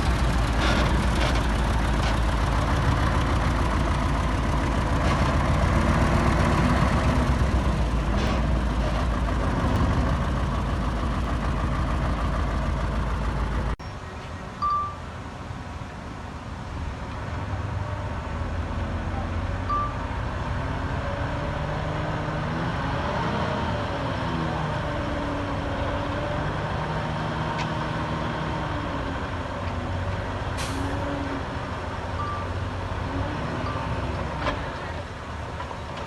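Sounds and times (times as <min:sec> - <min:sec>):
diesel machine engines under load: 0:00.0 - 0:36.0
short beeps: 0:14.6 - 0:15.0, 0:19.7 - 0:20.0, 0:32.2 - 0:32.5.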